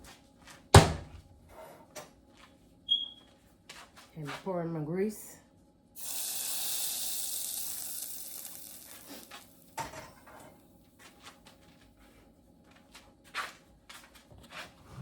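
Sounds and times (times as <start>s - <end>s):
hot oil hissing: 6.0s - 9.6s.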